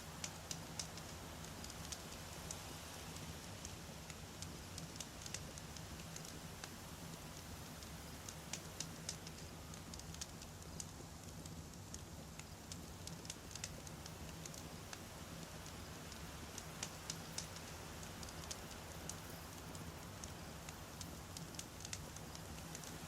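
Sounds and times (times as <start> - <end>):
campfire crackling and popping: 0.0 - 23.0.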